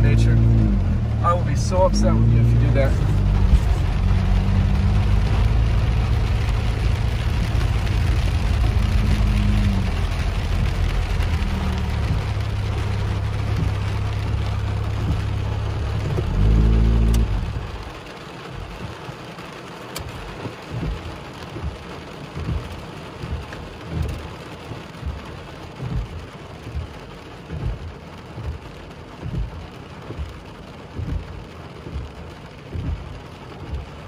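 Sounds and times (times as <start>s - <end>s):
low thumps: 0.0s - 17.8s, 25.8s - 33.9s
car engine running: 0.0s - 34.0s
rain hissing on car: 0.0s - 34.0s.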